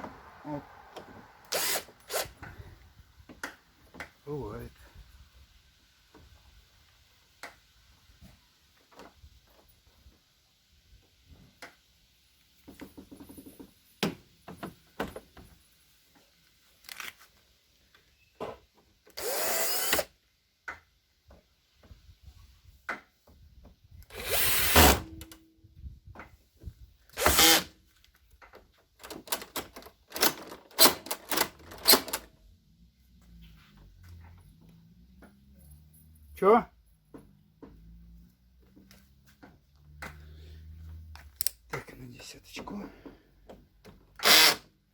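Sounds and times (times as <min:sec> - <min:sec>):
power drill whirring: 0:01.4 - 0:02.4, 0:19.1 - 0:20.1, 0:24.1 - 0:25.1, 0:27.1 - 0:27.7, 0:44.2 - 0:44.7.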